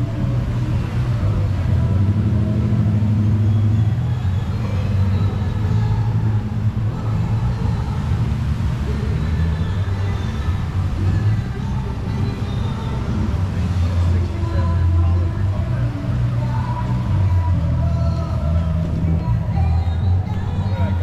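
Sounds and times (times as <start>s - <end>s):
car engine running at low revs: 0.0s - 21.0s
faint voices: 0.0s - 21.0s.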